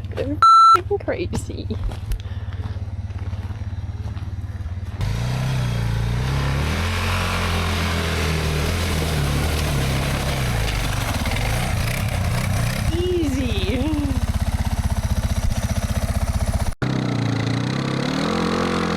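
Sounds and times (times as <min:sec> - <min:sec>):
motorcycle engine revving: 0:01.9 - 0:18.9.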